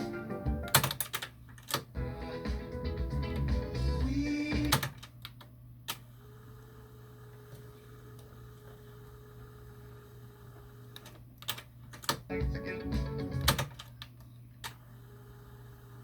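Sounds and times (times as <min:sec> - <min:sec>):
cassette music playback: 0:00.0 - 0:05.1, 0:12.1 - 0:13.8
tape transport clicks: 0:11.0 - 0:14.8.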